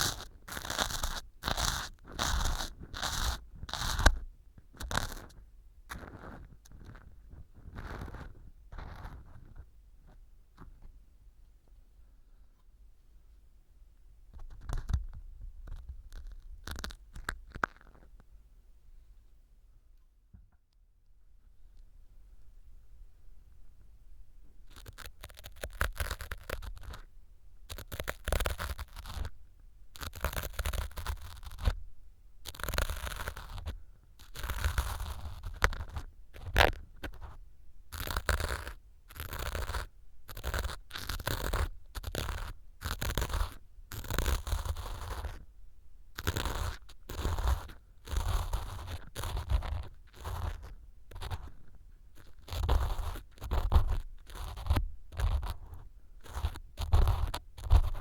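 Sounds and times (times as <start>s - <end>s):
ear pick scraping foam: 0.0s - 9.7s, 15.7s - 18.1s, 24.7s - 27.1s, 27.7s - 31.8s, 32.4s - 45.5s, 46.2s - 58.0s.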